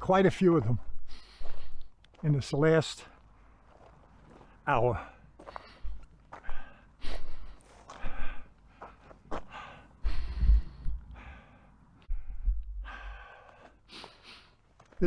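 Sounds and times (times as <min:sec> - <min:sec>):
man breathing hard: 0:01.0 - 0:01.9, 0:04.9 - 0:14.8
low rumbles: 0:10.0 - 0:13.5.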